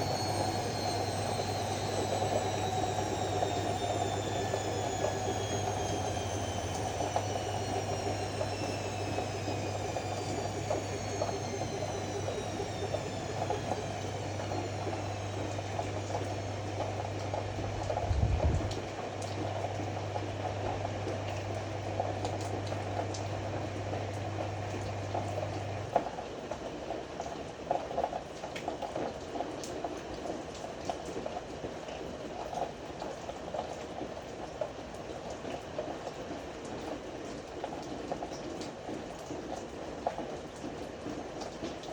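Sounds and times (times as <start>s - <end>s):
low hum: 0.0s - 18.9s
water sloshing in washing machine: 0.0s - 26.2s.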